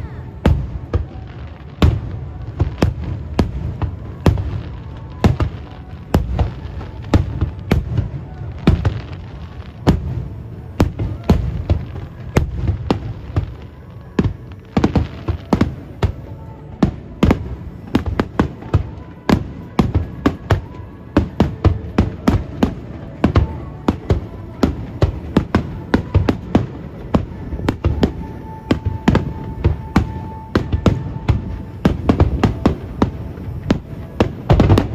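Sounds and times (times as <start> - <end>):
fireworks bursting: 0.0 - 34.9.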